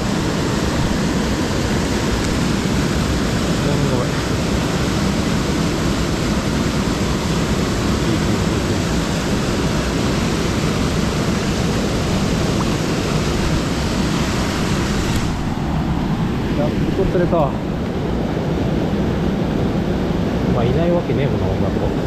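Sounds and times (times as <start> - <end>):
water rushing over rocks: 0.0 - 18.6.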